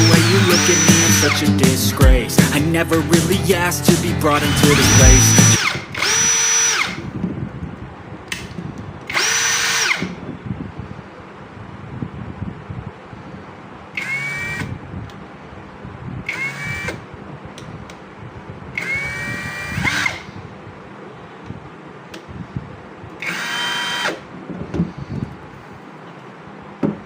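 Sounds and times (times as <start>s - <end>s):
cordless drill motor whine: 0.0s - 1.4s, 4.5s - 7.1s, 9.1s - 10.2s, 14.0s - 14.8s, 16.2s - 17.0s, 18.7s - 20.3s, 23.2s - 24.2s.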